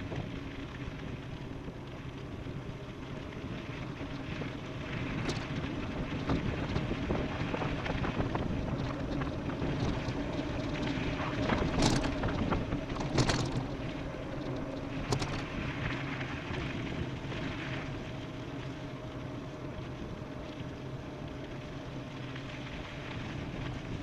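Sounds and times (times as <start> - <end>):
faint steady hum: 0.0 - 24.0
wind on microphone: 3.4 - 18.2.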